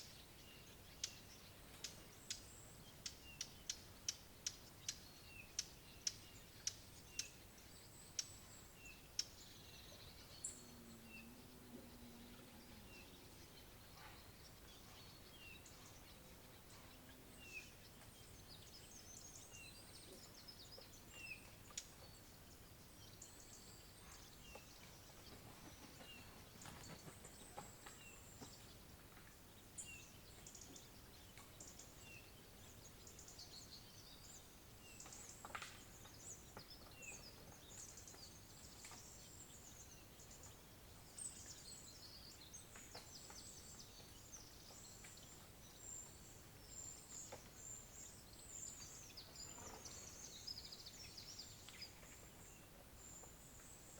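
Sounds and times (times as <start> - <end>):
bird twittering song: 0.0 - 53.9.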